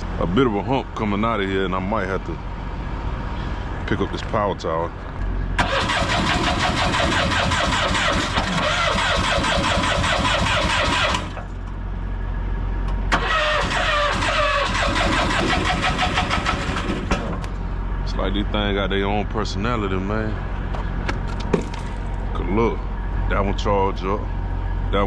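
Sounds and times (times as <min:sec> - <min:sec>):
starter cranking engine: 0:05.6 - 0:11.6, 0:13.1 - 0:17.5.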